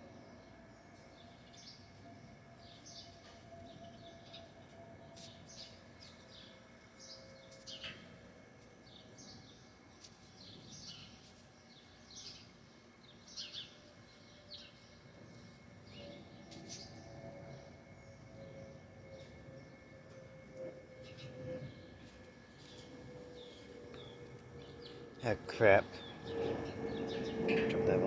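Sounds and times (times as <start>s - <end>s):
faint steady hum: 0.0s - 28.0s
small birds chirping: 8.6s - 28.0s.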